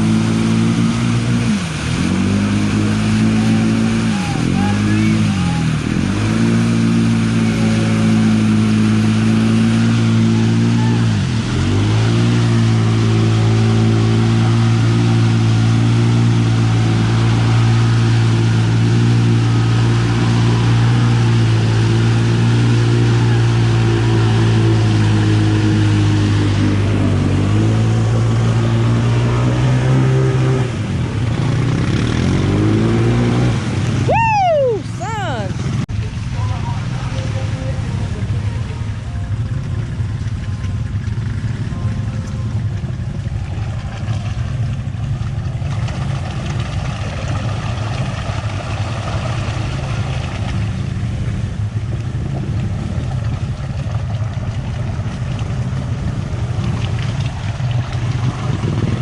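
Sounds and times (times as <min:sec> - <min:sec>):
atv engine at high revs: 0:00.0 - 0:34.1, 0:55.0 - 0:59.0.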